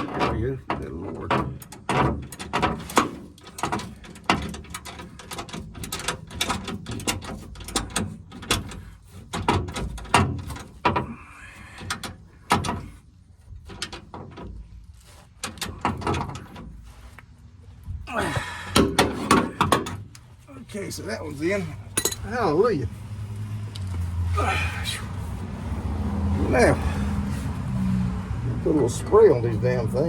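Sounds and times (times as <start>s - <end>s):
hand tools clicking and knocking on metal: 0.0s - 17.3s, 18.2s - 22.7s.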